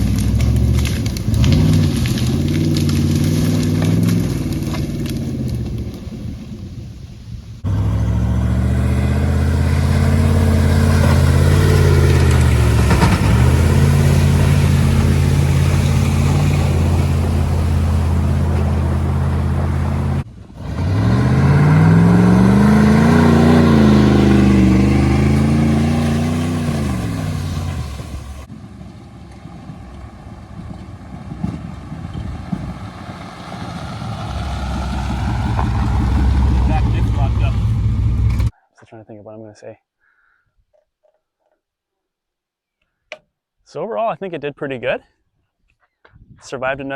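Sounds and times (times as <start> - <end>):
truck engine running and revving: 0.0 - 6.2, 7.6 - 38.5.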